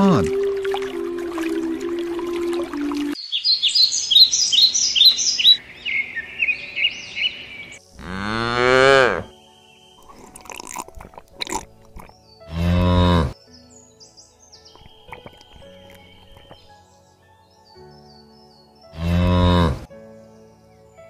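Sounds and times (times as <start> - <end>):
bird chirping quickly: 3.2 - 7.8
cow mooing: 8.0 - 9.3, 12.5 - 13.4, 19.0 - 19.9.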